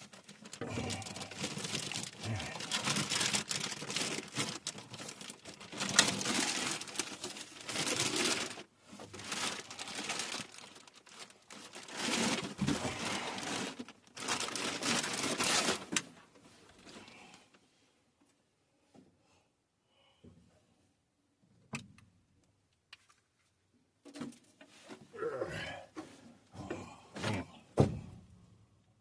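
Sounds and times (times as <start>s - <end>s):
packaging rustling and crinkling: 0.0s - 17.4s.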